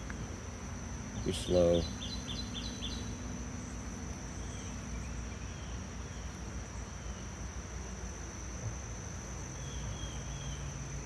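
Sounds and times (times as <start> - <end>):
high-pitched insect trill: 0.0 - 11.0
low hum of bee hive: 0.0 - 11.0
faint bird chirps: 1.2 - 3.8.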